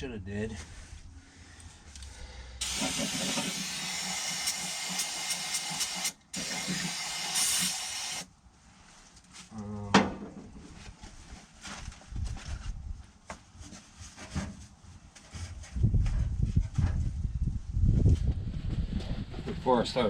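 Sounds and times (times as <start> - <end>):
pressurized spray hissing: 2.6 - 8.3.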